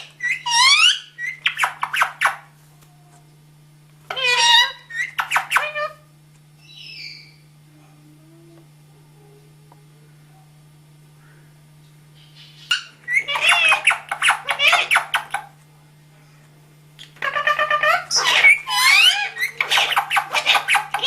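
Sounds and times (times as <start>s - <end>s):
parrot chattering: 0.0s - 2.4s, 4.1s - 6.0s, 12.5s - 15.5s, 17.1s - 21.0s.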